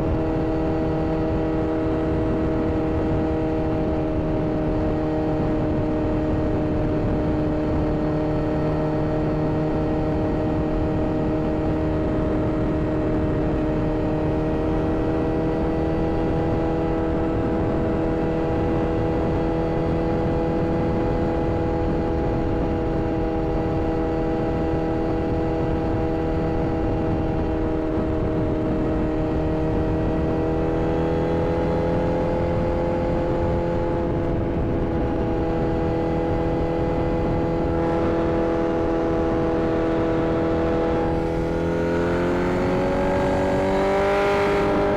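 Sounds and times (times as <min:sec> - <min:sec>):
motorcycle engine at high revs: 0:00.0 - 0:44.9
steady rush of noise: 0:36.8 - 0:44.9.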